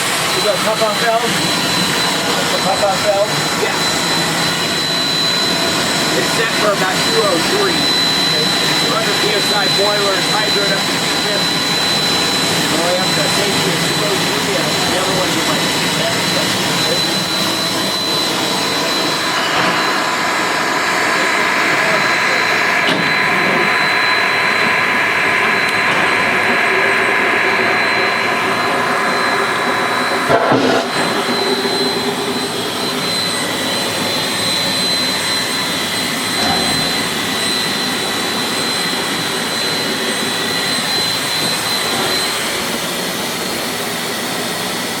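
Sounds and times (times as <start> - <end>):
steam locomotive roar and hiss: 0.0 - 45.0
thin high whistle: 28.0 - 38.0.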